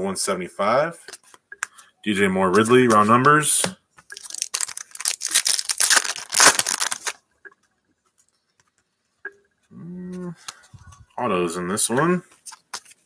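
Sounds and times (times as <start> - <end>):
wrapper tearing and crinkling: 4.2 - 7.2.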